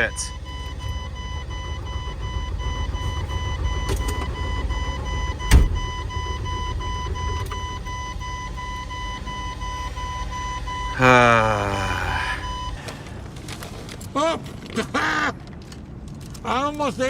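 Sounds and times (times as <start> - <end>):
dashboard warning chime beeping: 0.0 - 11.6, 12.4 - 12.8
diesel truck engine running: 0.0 - 13.4
sharp thump: 5.4 - 6.0.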